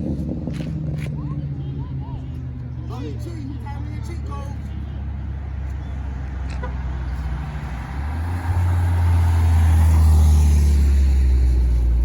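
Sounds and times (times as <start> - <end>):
car engine revving: 7.0 - 12.0.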